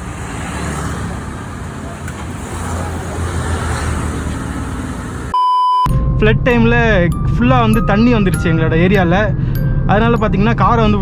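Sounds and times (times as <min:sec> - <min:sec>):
road traffic noise: 0:00.0 - 0:06.2, 0:07.1 - 0:11.0
loud electronic beep: 0:05.4 - 0:10.4.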